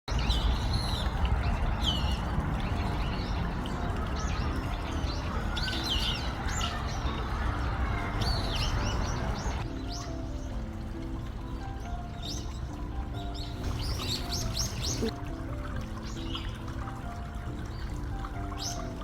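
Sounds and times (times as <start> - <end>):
small birds chirping: 0.1 - 15.2.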